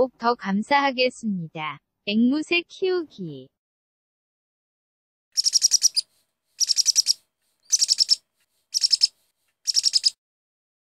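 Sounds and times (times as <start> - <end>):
bird chirping: 5.4 - 10.2.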